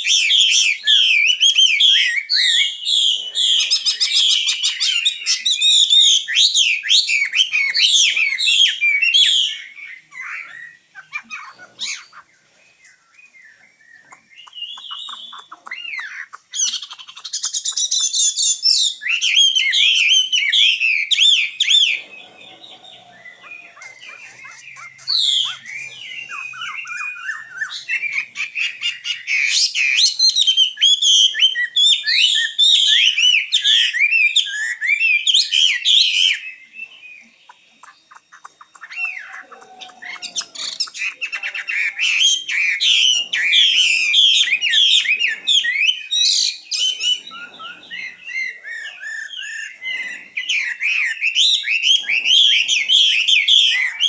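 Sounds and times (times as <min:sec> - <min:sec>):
nightingale singing: 0:00.0 - 0:54.0.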